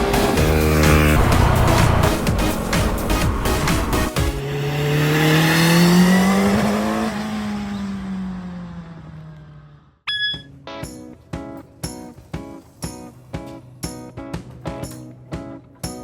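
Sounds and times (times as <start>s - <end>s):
loud rushing noise: 0.0s - 6.4s
vehicle engine revving: 0.0s - 9.9s.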